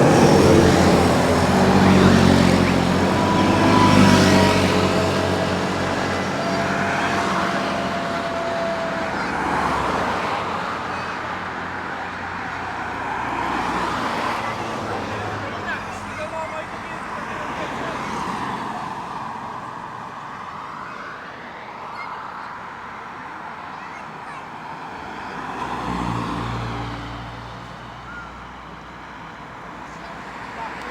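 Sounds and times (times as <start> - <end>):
trucks driving past: 0.0 - 21.7, 23.0 - 30.9
background hubbub: 0.0 - 30.9.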